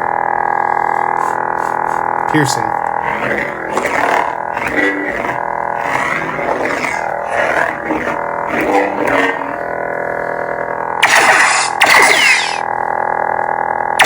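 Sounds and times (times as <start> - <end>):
lightsaber buzzing hum: 0.0 - 14.0
lightsaber swing swells: 11.0 - 12.7.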